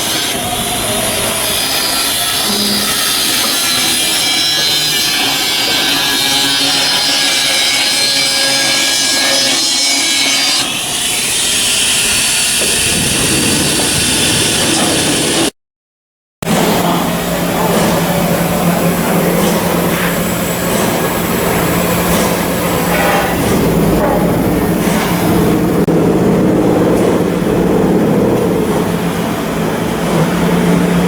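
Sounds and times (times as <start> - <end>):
power tool working steel: 0.0 - 15.5, 16.5 - 31.0
low rumble: 20.3 - 31.0.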